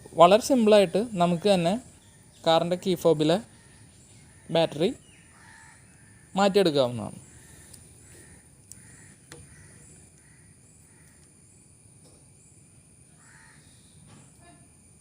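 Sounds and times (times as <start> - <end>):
faint bird calls: 3.4 - 11.4, 13.1 - 14.7.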